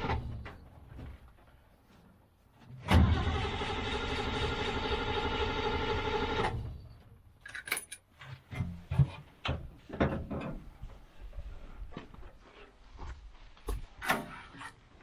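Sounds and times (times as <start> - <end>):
engine cranked by starter: 2.8 - 6.8.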